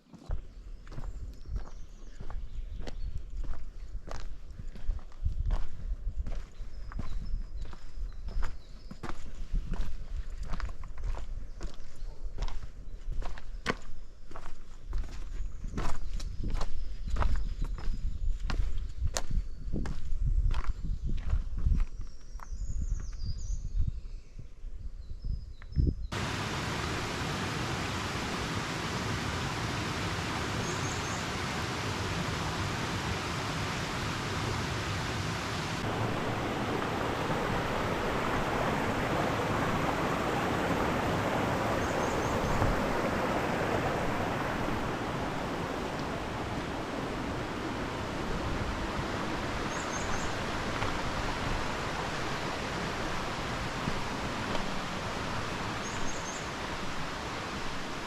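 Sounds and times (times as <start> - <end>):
mountain stream rushing: 26.1 - 58.0.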